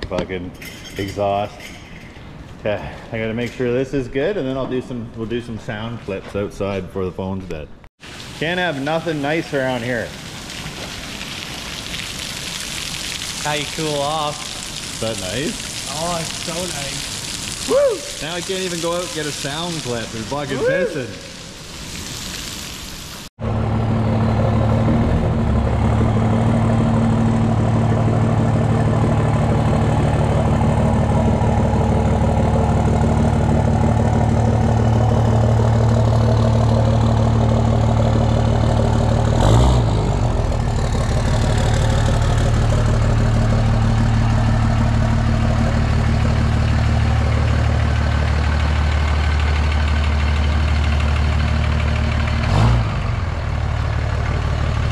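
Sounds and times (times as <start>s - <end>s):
diesel engine idling: 23.4s - 54.9s.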